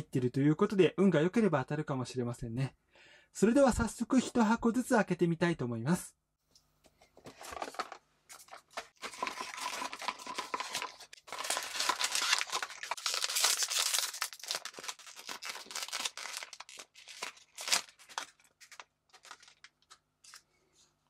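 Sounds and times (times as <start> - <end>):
cardboard box opened: 7.3 - 14.0
foil bag crinkling and tearing: 7.4 - 20.3.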